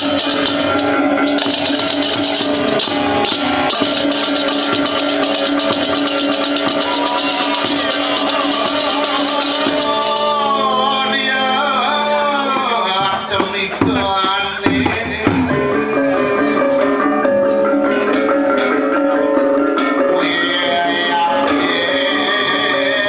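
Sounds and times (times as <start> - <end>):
ringing gong tones: 0.0 - 10.4
cymbals clashing: 0.0 - 10.5
drumming: 0.0 - 10.5, 12.8 - 15.9
sliding wavering melody: 0.0 - 10.6.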